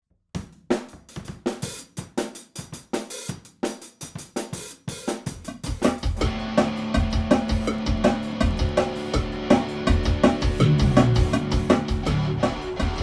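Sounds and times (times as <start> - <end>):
drum kit playing rock beat: 0.4 - 13.0
bass and pitched instruments: 6.2 - 13.0.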